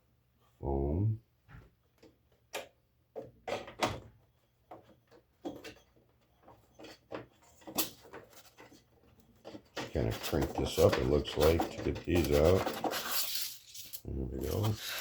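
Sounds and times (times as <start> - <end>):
parts knocking and clicking: 1.9 - 14.8
packing foam rustling: 10.0 - 15.0.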